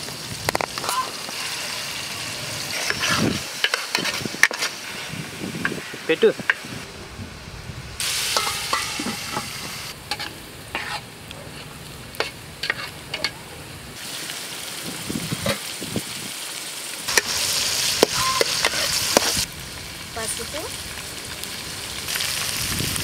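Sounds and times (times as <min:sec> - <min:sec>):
vegetables sizzling in oil: 0:00.0 - 0:23.0
metal spatula stirring vegetables: 0:00.8 - 0:06.6, 0:08.1 - 0:13.5, 0:17.1 - 0:19.4
metal pot lid clinking: 0:08.4 - 0:09.5.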